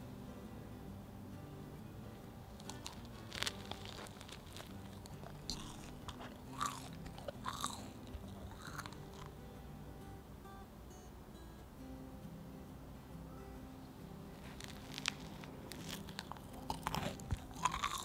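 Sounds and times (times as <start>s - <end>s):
cream puff crunching when bitten: 2.6s - 9.3s, 14.4s - 18.0s.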